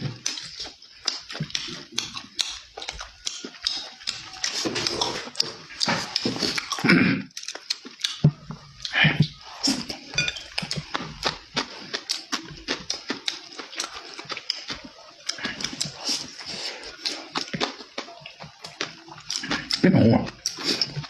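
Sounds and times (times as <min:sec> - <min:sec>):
person chewing food: 0:00.0 - 0:21.0.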